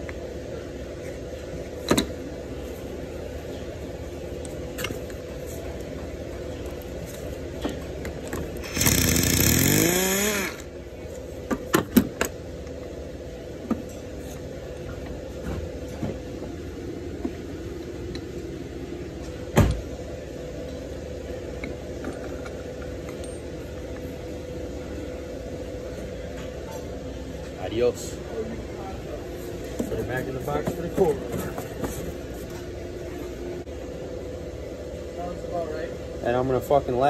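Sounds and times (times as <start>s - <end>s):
steady background hum: 0.0s - 37.0s
power tool spinning up: 8.6s - 10.7s.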